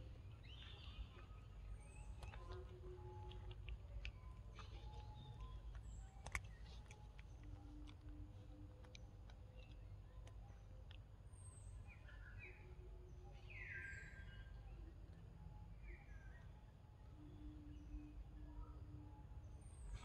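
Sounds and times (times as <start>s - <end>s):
faint clicks: 0.9s - 11.5s.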